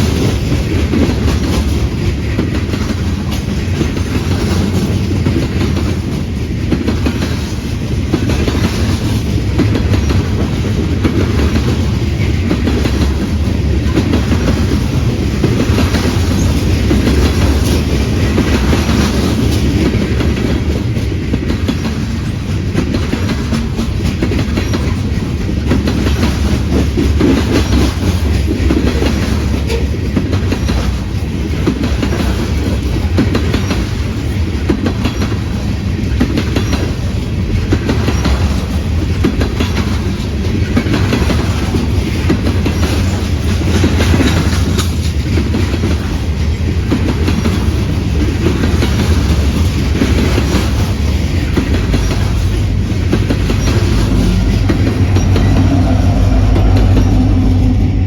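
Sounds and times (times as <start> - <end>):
train rumbling past: 0.0 - 58.0
wheels clacking over rail joints: 0.0 - 58.0.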